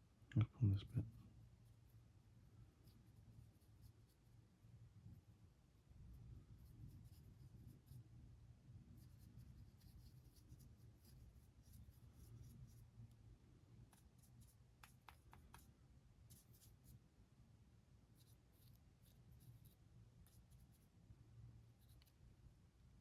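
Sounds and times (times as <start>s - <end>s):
paintbrush ticks and scratches: 1.0s - 2.1s, 2.8s - 4.4s, 6.1s - 8.1s, 9.0s - 13.2s, 13.8s - 17.0s, 18.2s - 21.0s, 21.6s - 22.2s.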